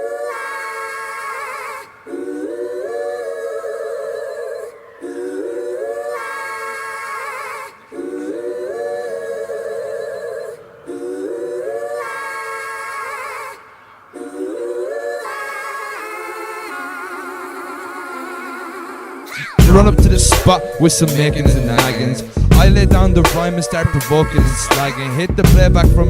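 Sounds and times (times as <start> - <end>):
wordless sung vocal harmonies: 0.0 - 26.0.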